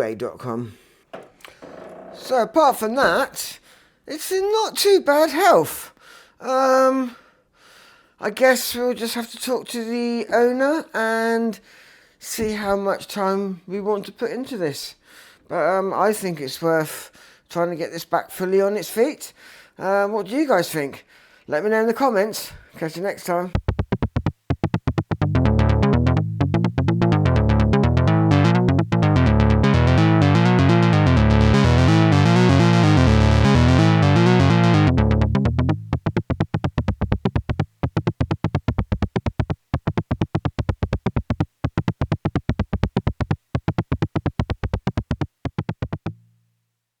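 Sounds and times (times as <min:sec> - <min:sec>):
repeating synthesizer notes: 0:23.6 - 0:46.1
heavy synth bass line: 0:23.6 - 0:46.2.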